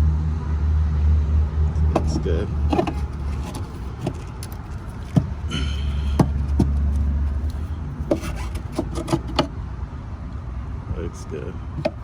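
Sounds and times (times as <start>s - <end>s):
diesel truck engine idling: 1.3s - 12.0s
sharp knocks and clanks: 1.7s - 9.5s, 11.8s - 12.0s.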